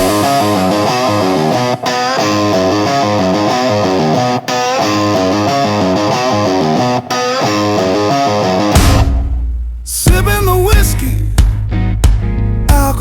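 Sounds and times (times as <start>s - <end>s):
distorted electric guitar: 0.0s - 13.0s.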